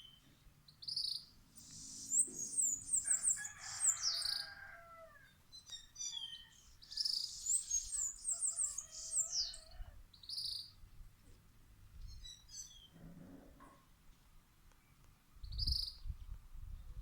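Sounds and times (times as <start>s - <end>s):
songbirds singing: 0.0s - 11.0s, 11.9s - 13.1s, 14.7s - 17.0s
rooster crowing faintly: 2.1s - 5.4s.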